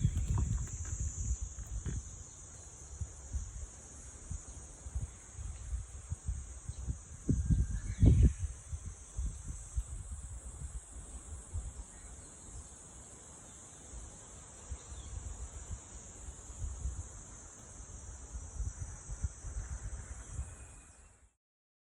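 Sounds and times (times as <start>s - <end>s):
insects shrilling: 0.0s - 3.6s.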